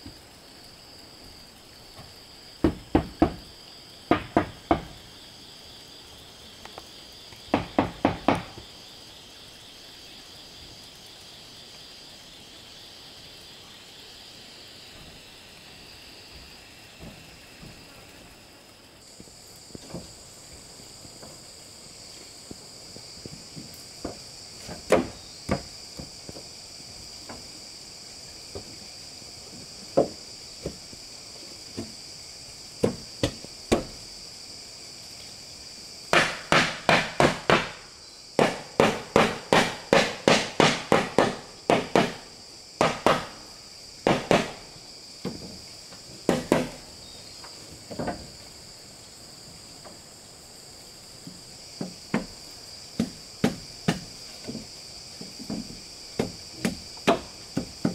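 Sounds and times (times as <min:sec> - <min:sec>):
insects shrilling: 0:00.0 - 0:57.9
hammer striking wood: 0:02.6 - 0:03.4, 0:04.1 - 0:05.0, 0:07.5 - 0:08.6, 0:36.1 - 0:37.8, 0:38.4 - 0:42.2, 0:42.8 - 0:43.4, 0:44.0 - 0:44.6, 0:46.3 - 0:46.8.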